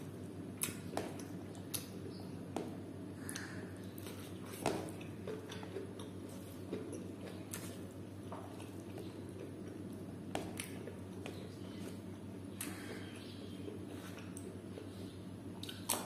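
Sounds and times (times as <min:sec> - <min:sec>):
faint steady hum: 0:00.0 - 0:16.0
person chewing food: 0:00.5 - 0:16.0
wet mouth clicks and smacks: 0:15.6 - 0:16.0.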